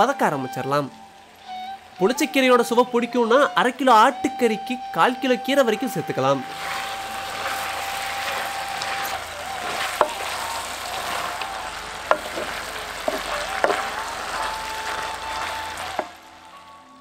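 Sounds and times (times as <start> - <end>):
meat and leaves sizzling in pot: 0.0 - 17.0
wooden spatula knocking on pot: 12.1 - 15.0.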